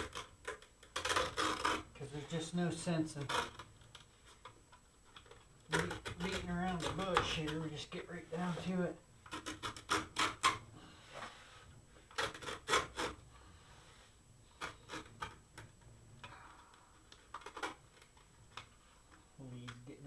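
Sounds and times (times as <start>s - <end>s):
blade cutting fabric: 12.2s - 13.2s.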